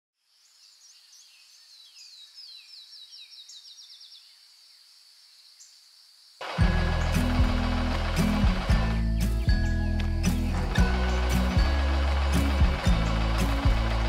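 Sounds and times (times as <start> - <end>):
high-pitched hum: 6.4 - 14.0.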